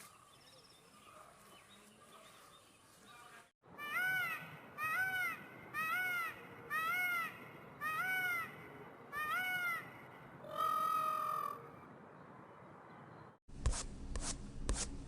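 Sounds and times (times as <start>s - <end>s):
animal calling: 3.8s - 11.8s.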